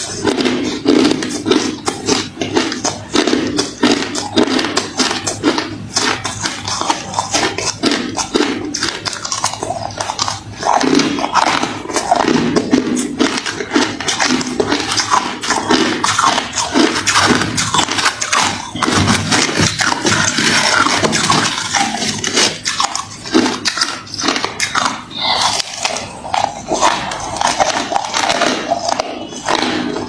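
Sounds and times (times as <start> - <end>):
person chewing ice: 0.0 - 30.0.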